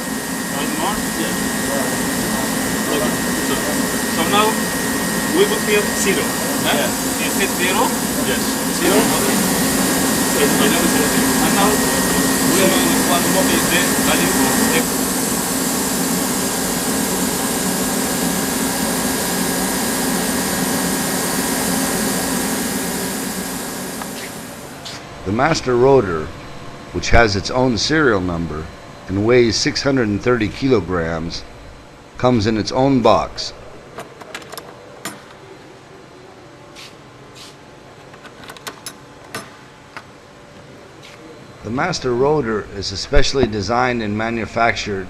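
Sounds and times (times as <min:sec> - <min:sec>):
low hum: 0:00.0 - 0:33.9
machinery whirring: 0:00.0 - 0:34.0.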